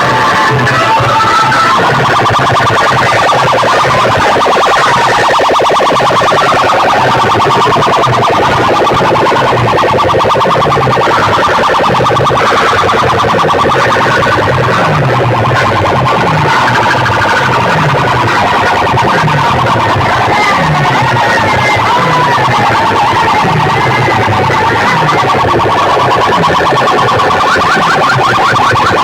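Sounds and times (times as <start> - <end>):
loud music from speakers: 0.0 - 29.0
rapid buzzing pulse: 0.0 - 29.0.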